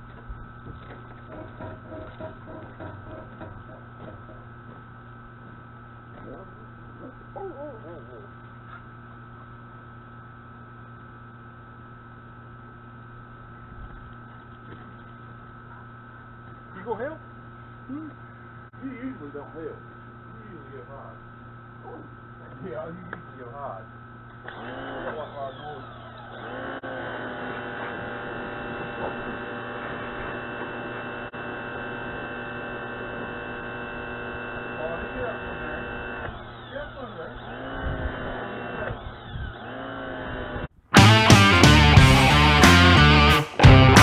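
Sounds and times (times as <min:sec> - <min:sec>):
steady hum with constant tones: 0:00.0 - 0:44.0
pressure washer humming: 0:41.0 - 0:44.0.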